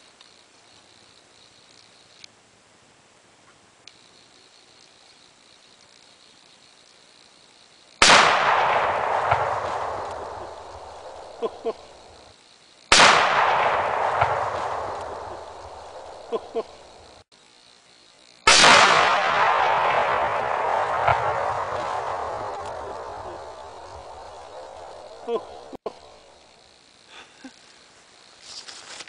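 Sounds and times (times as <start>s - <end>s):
rifle shot: 8.0s - 12.1s, 12.9s - 17.0s, 18.5s - 26.3s
explosion with rolling echo: 8.0s - 12.2s, 12.9s - 17.2s, 18.5s - 26.3s.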